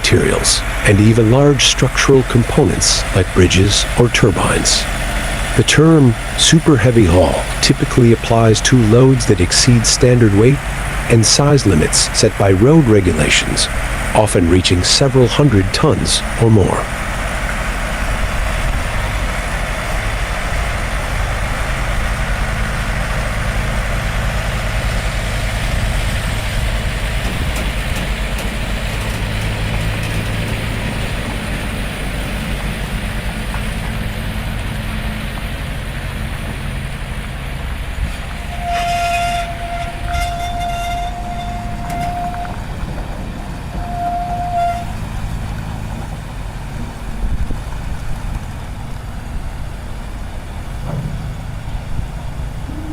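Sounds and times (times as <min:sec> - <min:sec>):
road noise: 0:00.0 - 0:52.9
truck diesel engine running: 0:00.0 - 0:52.9
air horn blasts: 0:38.4 - 0:42.8, 0:43.8 - 0:45.0.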